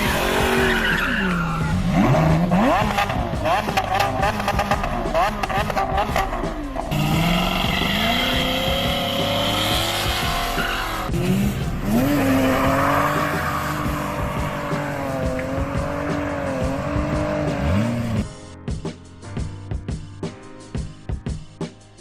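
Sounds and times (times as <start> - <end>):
sports car engine revving: 0.0 - 18.2.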